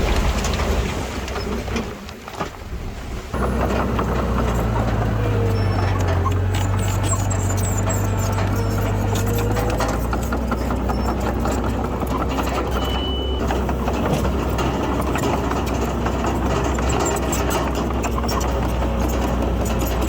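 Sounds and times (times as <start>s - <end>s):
constant rattle: 0.0s - 20.0s
heavy diesel engine running: 3.4s - 20.0s
short high beep: 12.7s - 13.4s.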